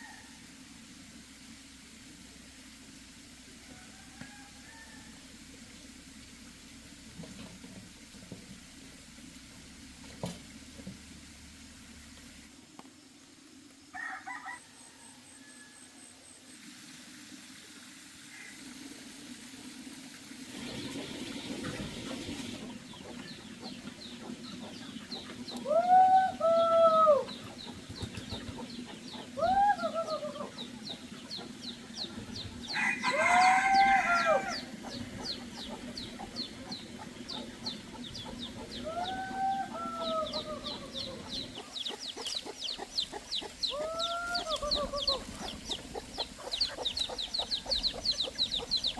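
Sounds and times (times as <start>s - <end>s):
chicks cheeping: 20.6s - 25.9s, 27.2s - 48.9s
hen calling: 32.8s - 48.9s.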